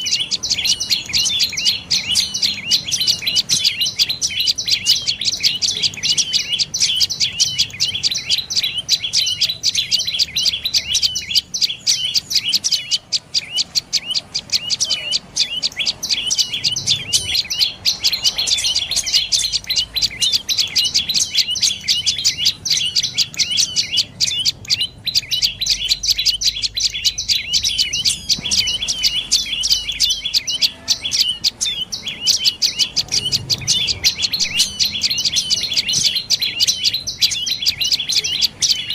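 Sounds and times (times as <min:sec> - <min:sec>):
bird calling sharp high notes: 0:00.0 - 0:38.9.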